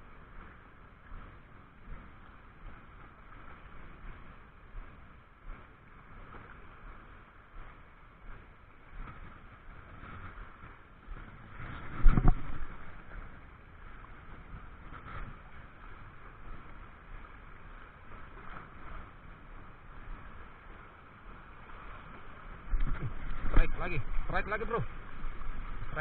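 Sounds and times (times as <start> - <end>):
water: 0.0 - 26.0
wind: 0.0 - 26.0.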